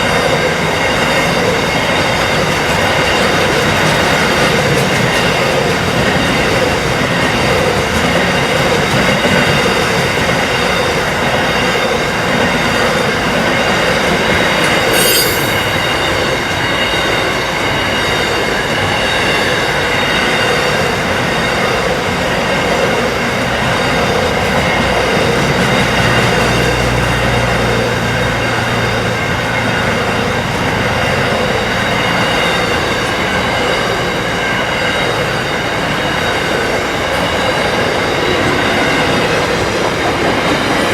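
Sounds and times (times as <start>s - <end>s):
wheel squeal: 13.6s - 17.0s.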